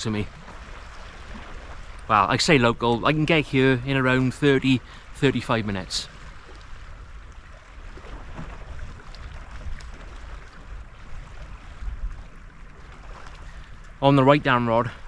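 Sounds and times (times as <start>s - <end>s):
wind rumbling on microphone: 0.0s - 15.0s
faint ticks: 6.4s - 7.4s.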